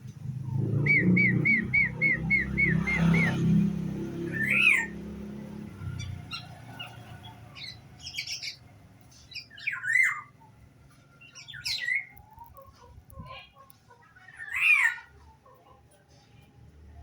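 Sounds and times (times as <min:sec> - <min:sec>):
songbird calling: 0:00.4 - 0:05.1, 0:05.8 - 0:10.6, 0:11.2 - 0:12.7
quiet bird chirps: 0:05.8 - 0:15.8.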